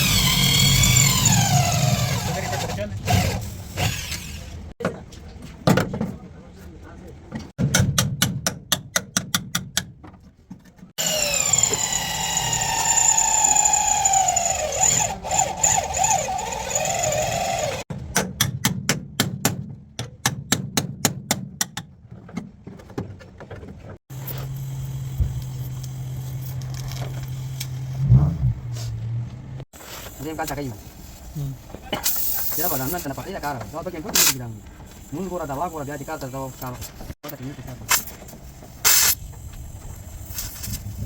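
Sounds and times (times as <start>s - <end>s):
spinning tool winding down: 11.0s - 17.8s
steady low hum: 24.1s - 29.7s.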